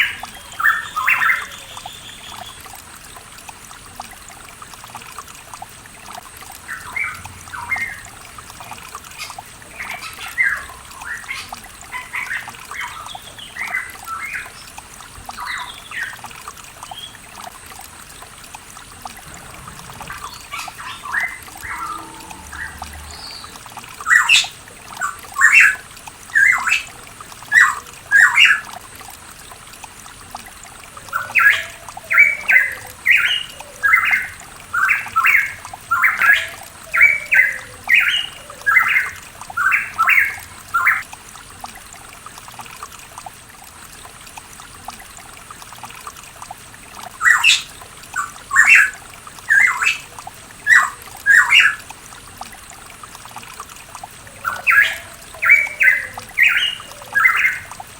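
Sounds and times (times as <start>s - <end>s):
bird calling in harsh notes: 19.2s - 24.5s.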